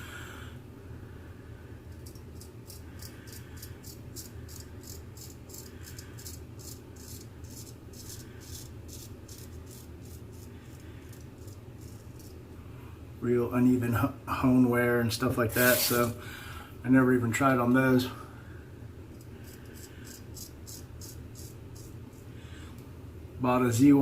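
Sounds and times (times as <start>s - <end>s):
razor scraping stubble: 2.0s - 12.4s, 15.5s - 16.2s, 19.2s - 22.3s.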